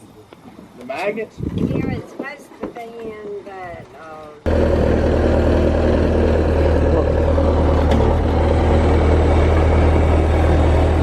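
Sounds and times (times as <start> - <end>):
vehicle engine running: 4.5 - 11.0.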